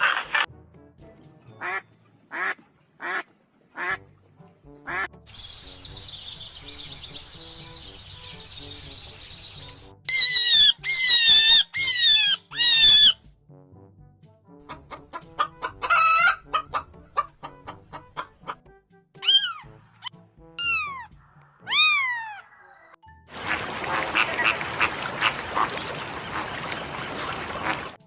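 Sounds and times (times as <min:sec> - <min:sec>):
faint background music: 0:00.4 - 0:24.6
chicken clucking and squawking: 0:14.6 - 0:18.6
cat meowing: 0:21.6 - 0:22.9
loud high animal calls: 0:21.6 - 0:23.0.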